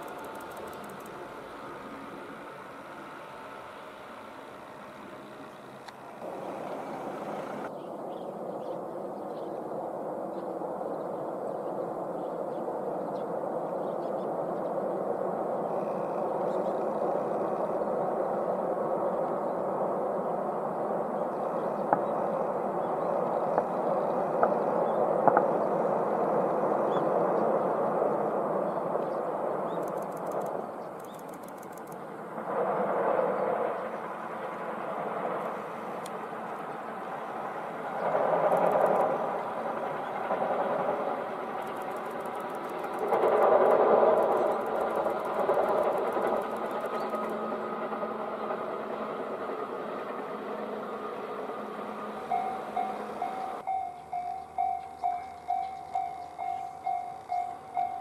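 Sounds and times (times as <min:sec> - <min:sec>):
rapid high ticking: 0:00.0 - 0:05.0, 0:29.8 - 0:32.7, 0:37.1 - 0:49.8
electric train running on rails: 0:00.0 - 0:08.3, 0:11.6 - 0:58.0.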